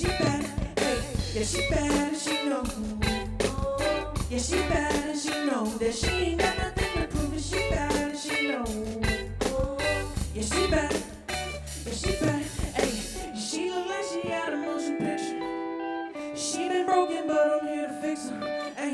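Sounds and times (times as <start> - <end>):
bass line: 0.0 - 13.3
guitar playing: 0.0 - 18.9.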